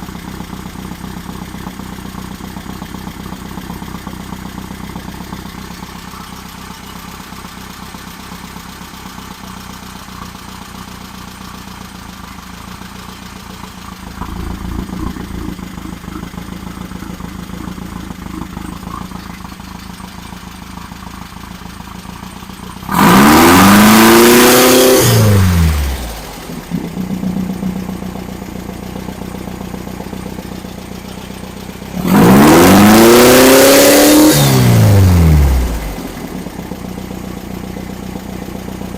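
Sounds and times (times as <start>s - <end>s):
engine running and revving: 14.0s - 20.1s, 20.8s - 30.0s, 31.0s - 38.9s.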